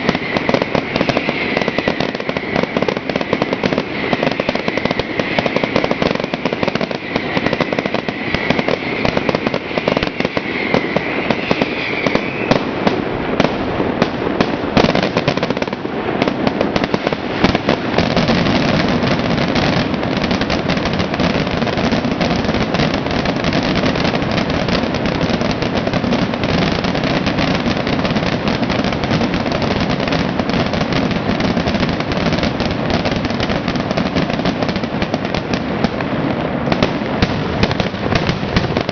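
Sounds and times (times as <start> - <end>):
wavering high whistle: 0.0 - 13.4
fireworks bangs and crackling: 0.0 - 38.9.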